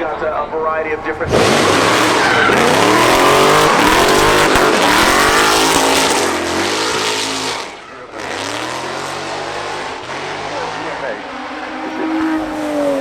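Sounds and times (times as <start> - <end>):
race car engine revving: 1.0 - 13.0.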